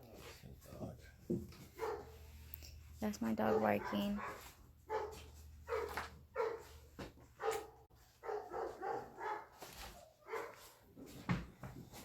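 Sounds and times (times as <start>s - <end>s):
dog barking: 1.7s - 2.2s, 3.4s - 6.8s, 7.4s - 10.8s.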